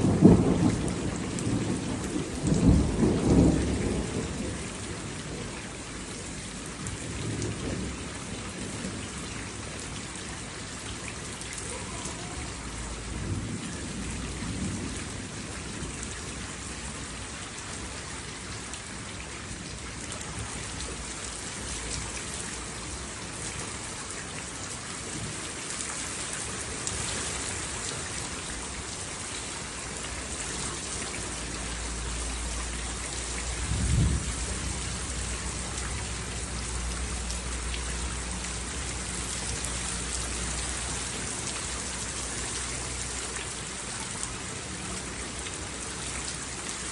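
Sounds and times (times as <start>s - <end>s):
thunder rumbling: 0.0s - 9.1s, 33.1s - 37.3s
heavy rain falling: 0.0s - 46.9s.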